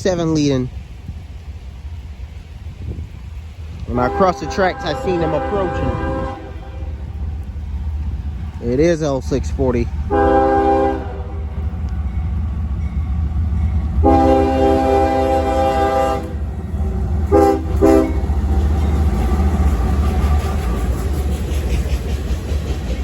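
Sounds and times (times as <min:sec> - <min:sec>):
steady low rumble: 0:00.0 - 0:23.0
locomotive air horn blasts: 0:03.9 - 0:07.0, 0:10.1 - 0:11.5, 0:14.0 - 0:16.5, 0:17.3 - 0:18.3.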